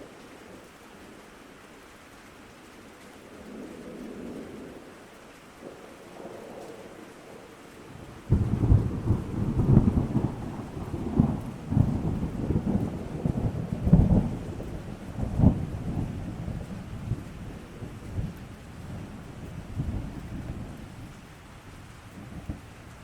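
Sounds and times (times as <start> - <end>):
steady rain hiss: 0.0 - 23.0
thunder rumbling: 7.9 - 23.0.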